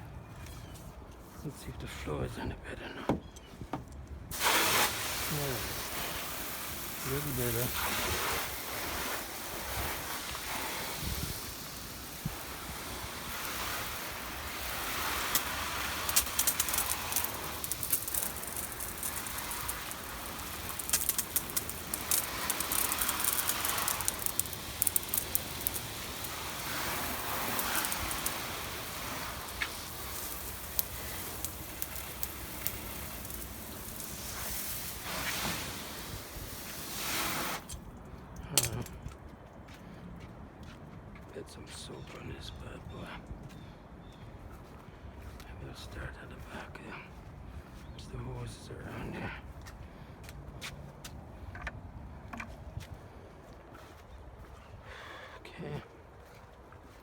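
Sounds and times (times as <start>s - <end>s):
hose spraying water on car: 4.3s - 37.8s
crackling water spatter: 4.3s - 38.9s.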